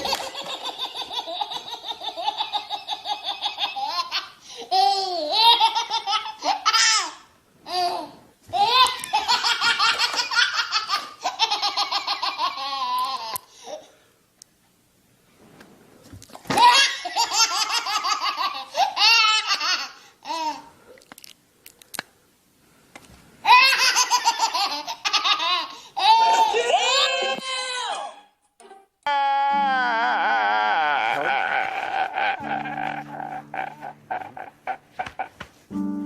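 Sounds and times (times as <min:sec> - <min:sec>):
rapid high-pitched laughter: 0:30.2 - 0:35.4.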